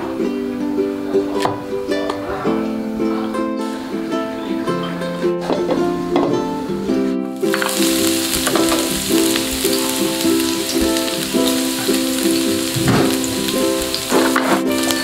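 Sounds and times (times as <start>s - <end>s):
plucked-string background music: 0.0s - 15.0s
garlic and ginger sizzling in oil: 7.4s - 15.0s.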